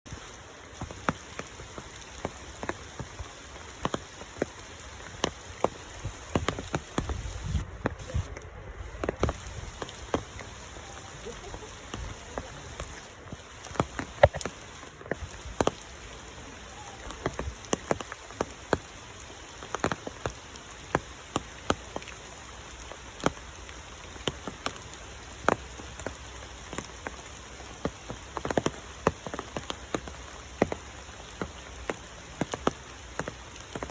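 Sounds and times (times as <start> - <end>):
raindrops tapping on surfaces: 0.1 - 33.9
steady rain hiss: 0.1 - 33.9.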